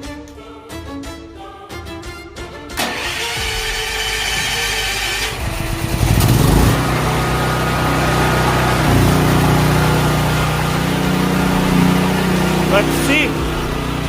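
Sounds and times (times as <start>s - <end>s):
generator engine cranking: 2.8s - 14.0s
generator engine running: 2.8s - 14.0s.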